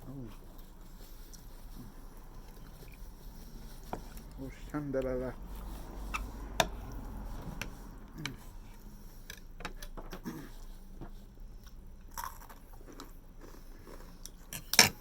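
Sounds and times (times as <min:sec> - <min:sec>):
person chewing: 0:00.0 - 0:04.5, 0:10.2 - 0:15.0.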